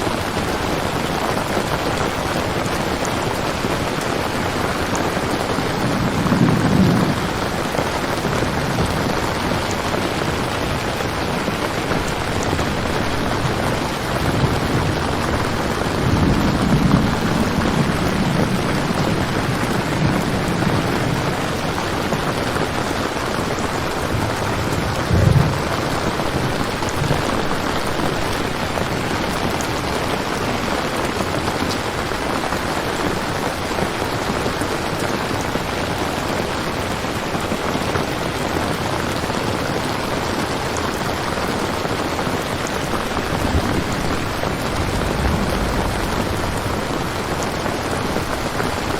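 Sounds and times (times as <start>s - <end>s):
steady rain: 0.0s - 48.9s
thunder rolling: 3.6s - 33.5s, 42.4s - 48.9s.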